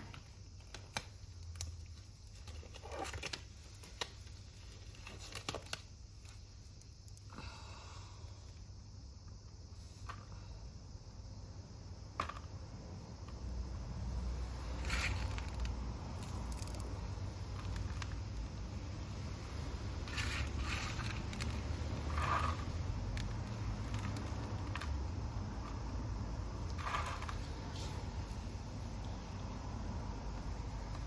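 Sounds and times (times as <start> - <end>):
scraping and rustling: 26.5 - 29.0.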